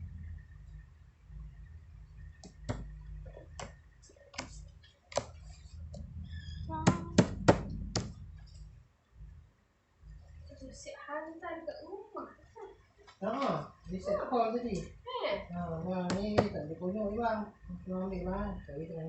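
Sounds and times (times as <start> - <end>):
low rumble: 0.0 - 3.6, 5.5 - 10.8, 13.9 - 19.0
sharp taps and knocks: 2.4 - 5.4, 6.8 - 8.2.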